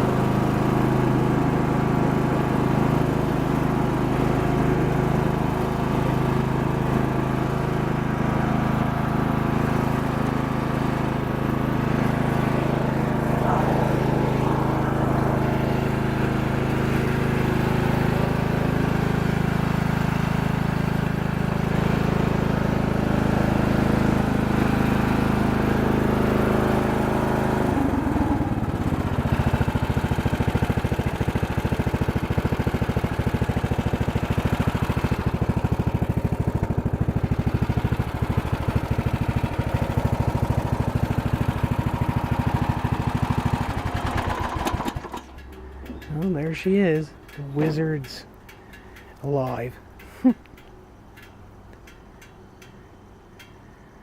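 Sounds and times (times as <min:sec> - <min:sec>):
garden tractor engine running: 0:00.0 - 0:54.0.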